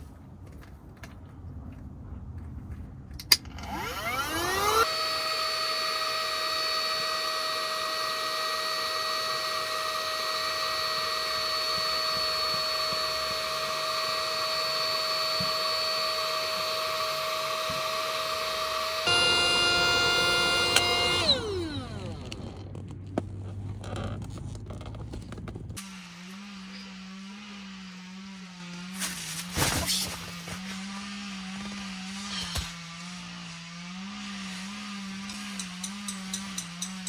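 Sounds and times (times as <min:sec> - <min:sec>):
motor clicking on: 0:03.4 - 0:23.1
electric motor whine: 0:03.5 - 0:37.0.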